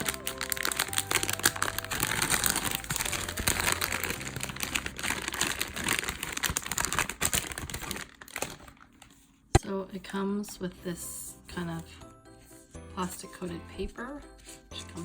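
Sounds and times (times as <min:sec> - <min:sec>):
paper wrapper crinkling: 0:00.0 - 0:09.5.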